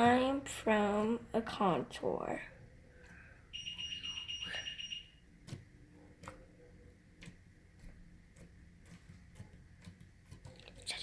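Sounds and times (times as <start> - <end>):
rapid electronic beeps: 3.5 - 5.2.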